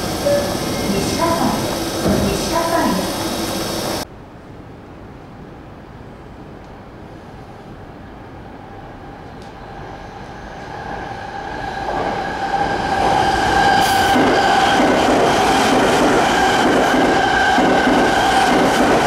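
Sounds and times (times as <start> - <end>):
train wheels rumbling on rails: 0.0 - 4.1, 9.1 - 19.0
steady train whine: 0.0 - 19.0.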